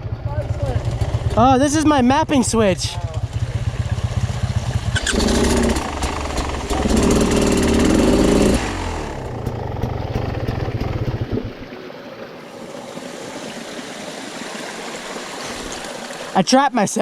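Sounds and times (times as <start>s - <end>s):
dirt bike engine revving: 3.1s - 11.5s.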